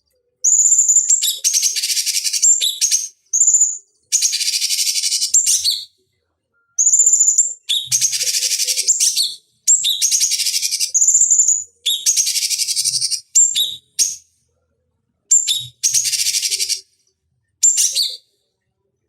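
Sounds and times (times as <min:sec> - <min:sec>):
bird singing buzzy trilled phrases: 0:00.4 - 0:05.9, 0:06.8 - 0:14.2, 0:15.3 - 0:16.8, 0:17.6 - 0:18.2.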